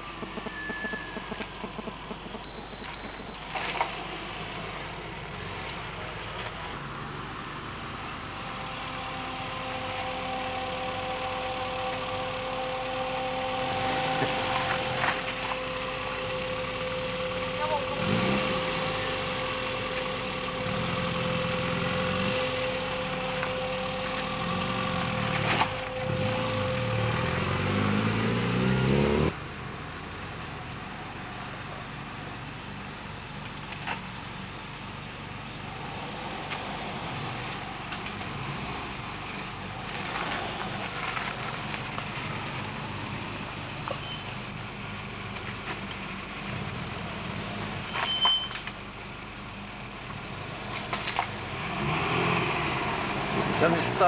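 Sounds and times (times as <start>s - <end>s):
car engines running: 0.0s - 54.0s.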